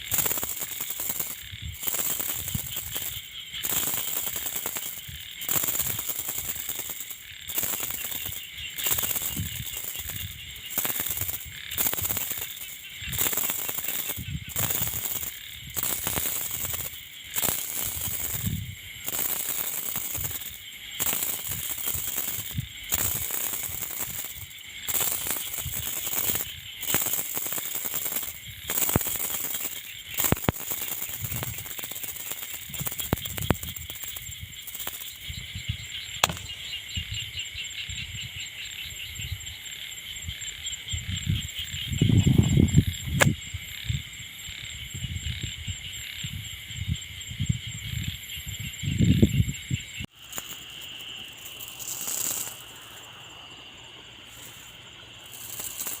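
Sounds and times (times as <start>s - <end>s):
wind gusting over microphone: 0.0s - 24.5s, 32.5s - 37.3s, 40.2s - 50.1s
sharp clicks: 0.0s - 35.3s, 36.2s - 36.7s
high chirring: 0.0s - 35.5s.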